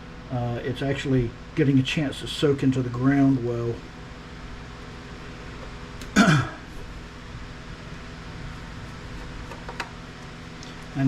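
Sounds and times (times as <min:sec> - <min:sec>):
low background hum: 0:00.0 - 0:11.0
man clearing throat: 0:06.0 - 0:06.7.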